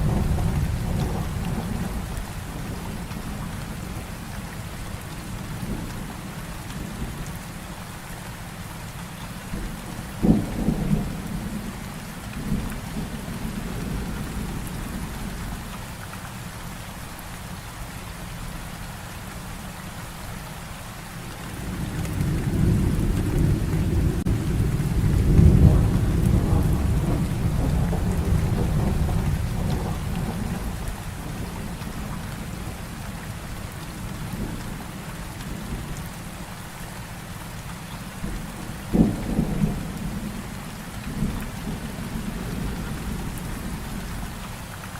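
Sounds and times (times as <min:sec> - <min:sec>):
low rumble of thunder: 0:00.0 - 0:08.0, 0:09.4 - 0:16.0, 0:21.2 - 0:36.8, 0:38.2 - 0:44.5
heavy rain falling: 0:00.0 - 0:44.9
sharp thunderclap: 0:21.5 - 0:32.6, 0:38.2 - 0:40.4.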